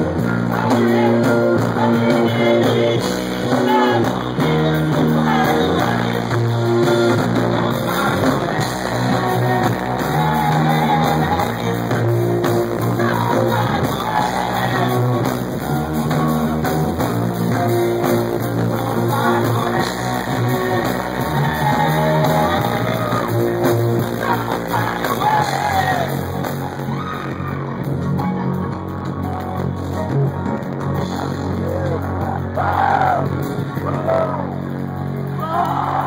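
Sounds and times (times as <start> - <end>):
voices singing: 0.0 - 27.7
electric guitar: 0.0 - 36.0
live rock band: 0.0 - 36.0.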